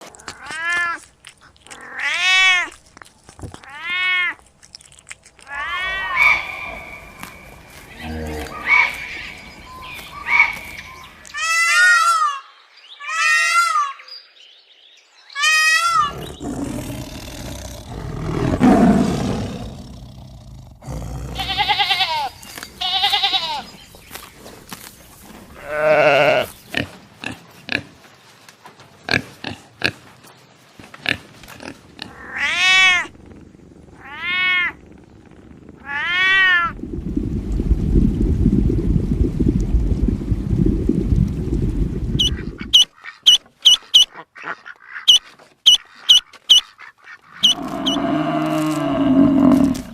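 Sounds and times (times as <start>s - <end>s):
pitched animal calls: 5.3s - 12.4s, 15.4s - 20.1s, 20.8s - 23.7s, 42.2s - 49.9s
rough low animal call: 5.4s - 12.2s, 15.8s - 23.8s, 31.7s - 37.8s, 47.3s - 49.9s
low rumble: 5.6s - 11.3s, 32.2s - 42.7s
bleat-like animal calls: 21.3s - 23.7s.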